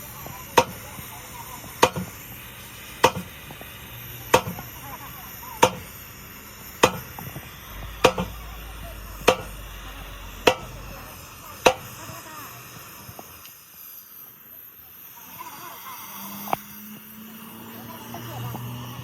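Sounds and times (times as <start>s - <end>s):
hammer striking metal: 0.6s - 0.8s, 1.8s - 2.2s, 3.0s - 3.4s, 4.3s - 4.7s, 5.6s - 6.0s, 6.7s - 12.0s.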